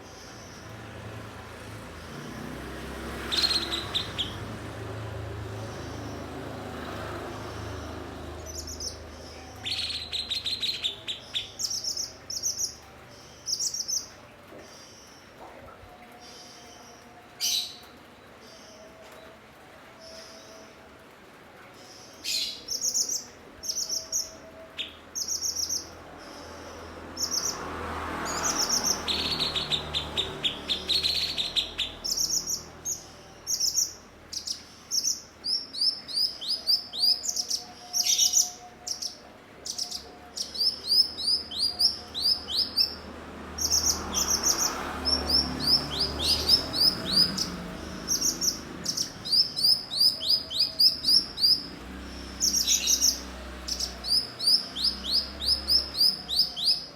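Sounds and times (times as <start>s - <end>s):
bird singing high chirps: 3.1s - 4.5s, 7.6s - 15.3s, 28.2s - 56.9s.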